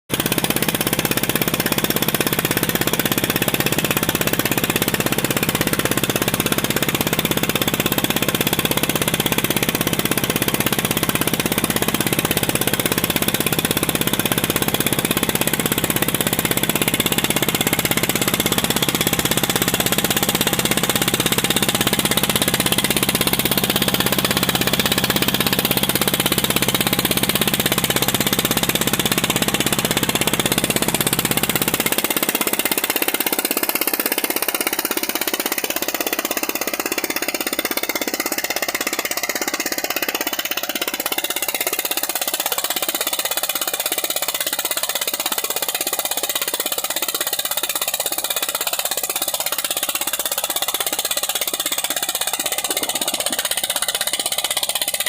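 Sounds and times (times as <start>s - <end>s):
engine running with fast knocking: 0.0s - 55.0s.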